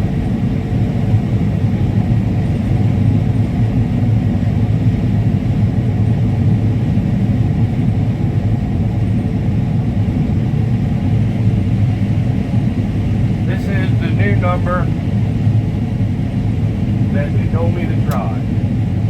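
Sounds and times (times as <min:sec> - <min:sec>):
combine harvester droning: 0:13.1 - 0:19.0.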